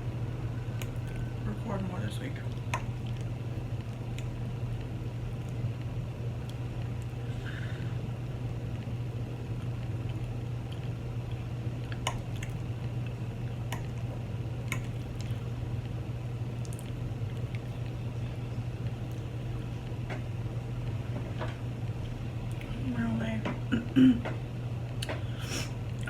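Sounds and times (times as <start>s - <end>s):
steady low hum: 0.0s - 26.0s
person chewing food: 9.6s - 15.6s, 16.6s - 20.0s.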